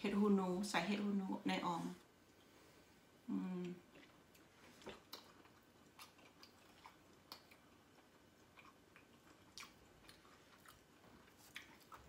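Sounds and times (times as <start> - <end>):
person chewing food: 3.6 - 12.0.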